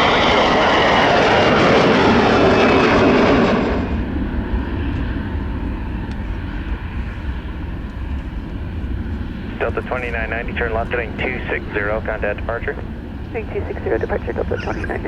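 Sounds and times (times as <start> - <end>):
airliner engines rushing: 0.0 - 15.0.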